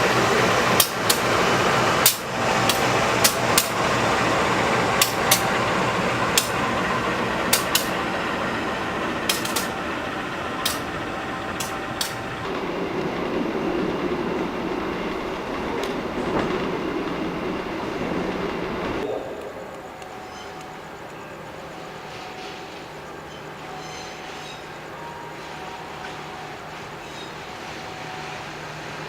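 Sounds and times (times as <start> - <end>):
wheels clicking over rail joints: 0.0 - 19.0
train running on rails: 0.0 - 29.0.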